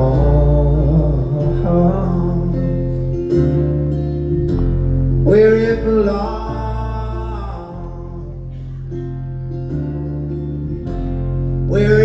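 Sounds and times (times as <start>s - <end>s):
person singing: 0.0s - 3.3s, 5.2s - 9.0s, 11.7s - 12.0s
acoustic guitar strumming: 0.0s - 12.0s
low bass line: 0.0s - 12.0s.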